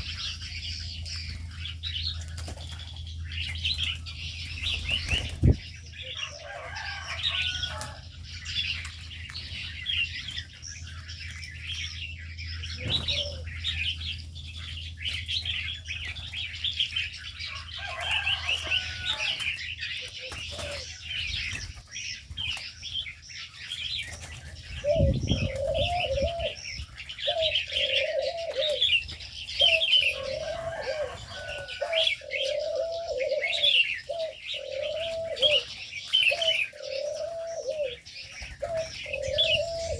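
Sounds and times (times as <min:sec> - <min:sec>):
small birds chirping: 0:00.0 - 0:39.9
dove cooing: 0:12.6 - 0:14.2, 0:17.5 - 0:21.5, 0:24.1 - 0:39.9.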